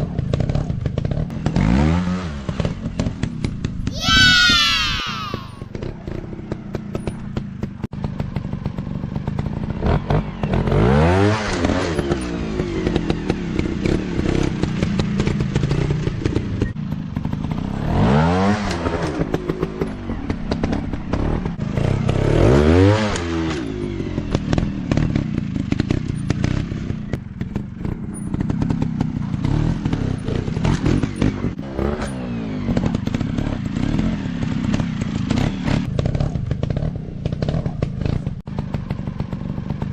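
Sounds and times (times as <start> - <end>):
dirt bike engines revving: 3.9 - 7.1.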